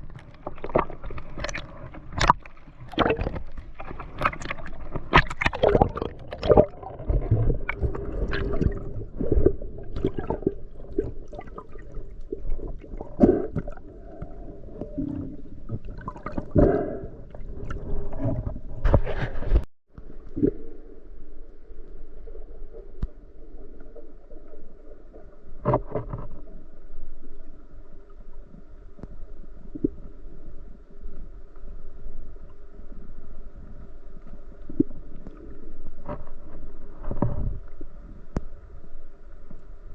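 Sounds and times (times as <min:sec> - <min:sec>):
water sloshing and gurgling: 0:00.0 - 0:39.9
knocks and splashes: 0:00.4 - 0:11.6.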